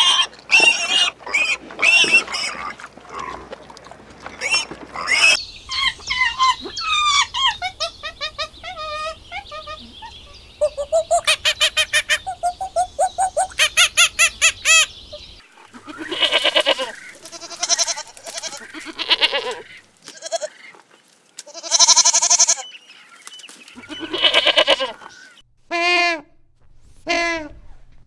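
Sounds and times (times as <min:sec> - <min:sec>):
goats bleating: 0:15.7 - 0:20.7, 0:21.4 - 0:22.6, 0:23.8 - 0:25.0.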